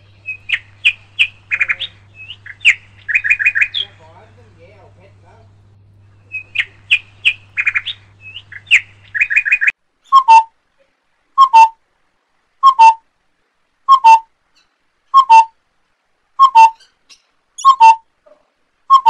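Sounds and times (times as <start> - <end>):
bird chirps and whistles: 6.3 - 10.5, 11.4 - 11.8, 12.6 - 13.0, 13.9 - 15.6, 16.4 - 17.0, 17.6 - 18.1
two-note whistled bird call: 10.1 - 10.5, 11.4 - 11.8, 12.6 - 13.0, 13.9 - 14.3, 15.1 - 15.6, 16.4 - 16.9, 17.6 - 18.1.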